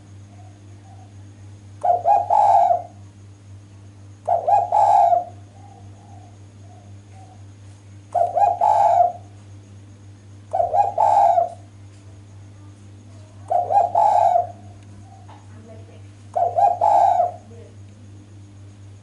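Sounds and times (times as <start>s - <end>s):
dove cooing: 0.3s - 3.0s, 4.2s - 7.5s, 8.1s - 9.4s, 10.5s - 11.7s, 13.4s - 15.5s, 16.3s - 17.7s.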